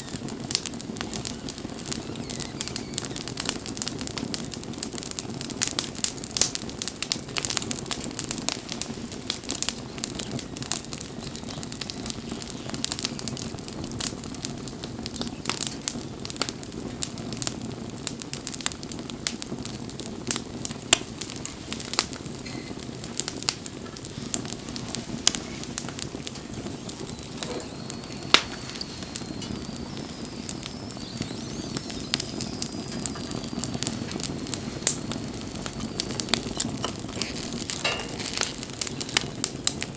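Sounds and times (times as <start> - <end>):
burning wood crackling and popping: 0.0 - 39.9
campfire flame rushing: 0.0 - 39.9
faint wavering high whistle: 1.0 - 3.5, 26.4 - 37.4.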